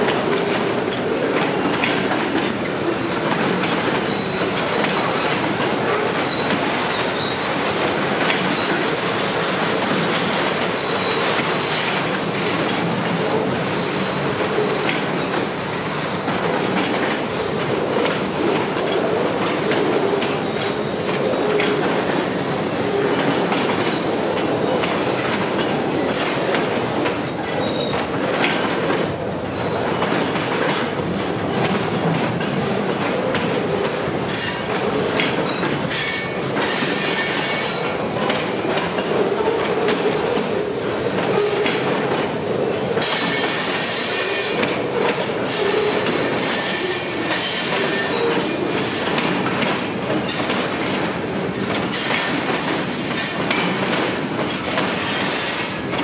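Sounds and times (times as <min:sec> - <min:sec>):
freight train cars rolling: 0:00.0 - 0:56.0
wheels clacking over rail joints: 0:00.0 - 0:56.0
train wheels squealing: 0:03.6 - 0:13.4, 0:14.6 - 0:16.8, 0:17.4 - 0:18.9, 0:20.4 - 0:30.6, 0:33.8 - 0:34.7, 0:35.5 - 0:38.0, 0:40.4 - 0:42.1, 0:43.0 - 0:44.8, 0:45.4 - 0:49.2, 0:51.2 - 0:53.7, 0:54.8 - 0:56.0.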